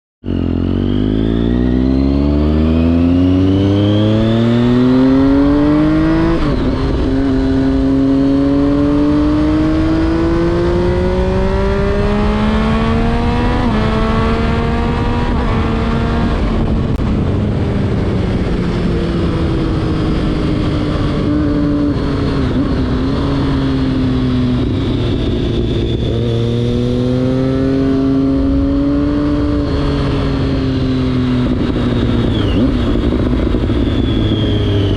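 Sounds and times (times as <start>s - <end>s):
motorcycle engine revving: 0.2s - 34.9s.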